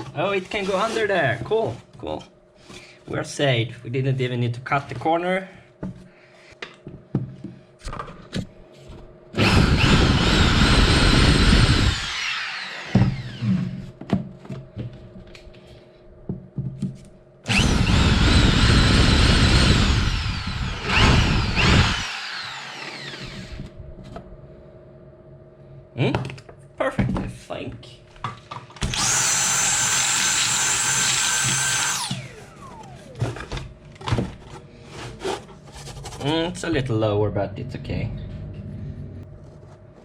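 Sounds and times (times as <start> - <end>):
power drill whining: 9.4 - 13.9, 17.5 - 23.7, 28.8 - 33.6.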